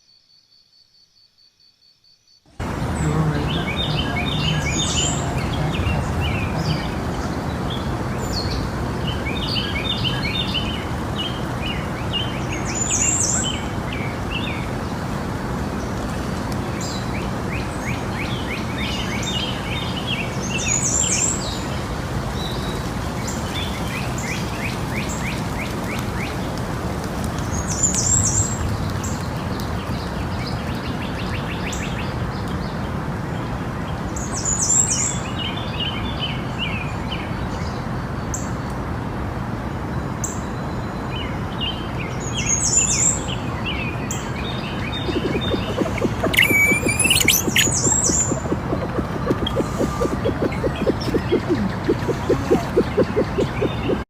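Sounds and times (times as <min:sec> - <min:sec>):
steady background noise: 0:41.4 - 0:54.0
small birds chirping: 0:42.4 - 0:54.0
louder high bird call: 0:45.1 - 0:52.8.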